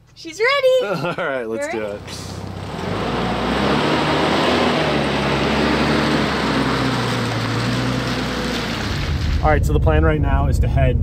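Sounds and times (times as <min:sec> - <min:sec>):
engine running steadily: 0:01.2 - 0:09.8.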